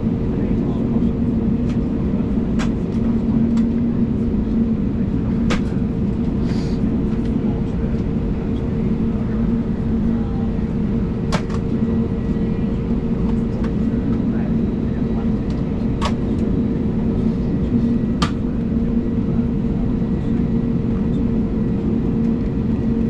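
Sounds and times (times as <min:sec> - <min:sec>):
aircraft cabin engine hum: 0:00.0 - 0:23.0
sharp clicks in cabin: 0:02.6 - 0:03.8, 0:05.5 - 0:05.8, 0:11.3 - 0:11.8, 0:15.5 - 0:16.5, 0:18.2 - 0:18.4.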